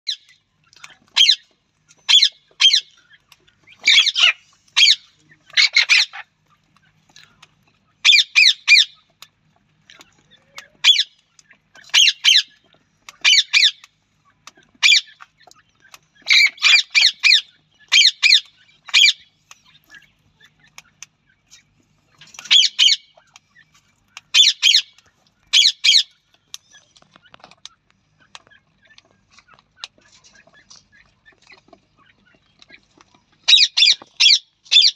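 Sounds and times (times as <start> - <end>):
parrot calling: 1.1 - 1.4, 2.0 - 2.9, 3.7 - 6.3, 8.0 - 9.0, 10.4 - 11.2, 11.9 - 12.6, 13.2 - 13.8, 14.8 - 15.2, 16.2 - 19.3, 22.4 - 23.2, 24.2 - 26.2, 33.4 - 34.9
francolin calling: 3.7 - 6.3, 8.0 - 9.0, 22.4 - 23.2, 24.2 - 26.9, 33.4 - 34.9.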